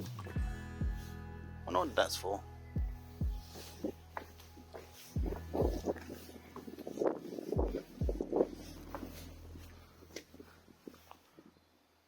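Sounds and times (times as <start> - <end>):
footsteps: 2.8 - 11.6
wind buffeting microphone: 5.2 - 11.5.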